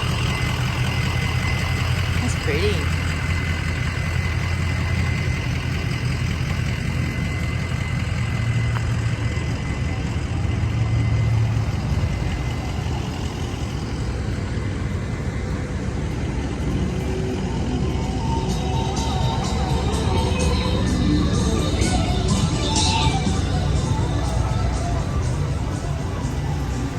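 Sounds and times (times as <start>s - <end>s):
car engine low rumble: 0.0s - 26.9s.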